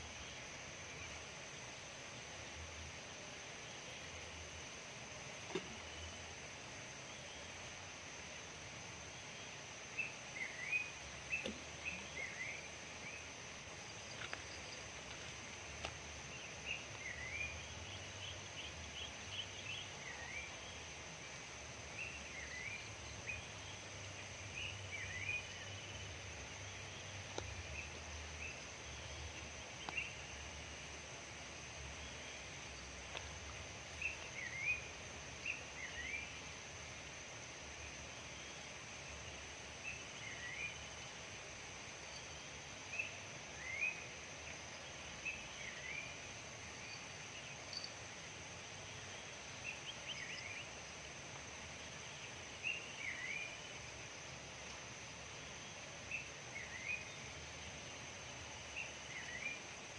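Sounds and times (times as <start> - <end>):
steady outdoor hiss: 0.0 - 59.9.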